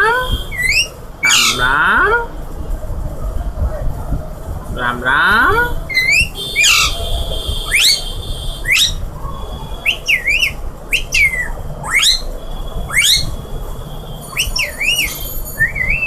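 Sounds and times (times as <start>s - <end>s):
parakeet warbling chirps: 0.5s - 1.6s, 5.9s - 9.0s, 9.8s - 12.3s, 12.9s - 13.4s, 14.3s - 16.0s
parakeet whistled calls: 0.5s - 1.6s, 5.9s - 13.4s, 14.2s - 16.0s.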